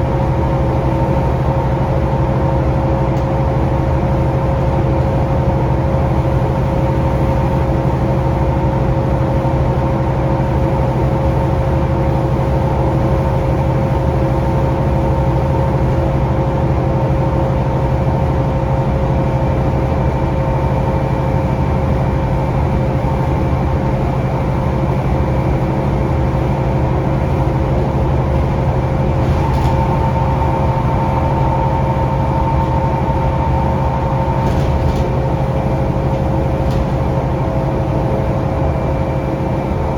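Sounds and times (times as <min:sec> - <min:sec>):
bus diesel engine rumbling: 0:00.0 - 0:39.9
steady whining tones: 0:27.6 - 0:39.9.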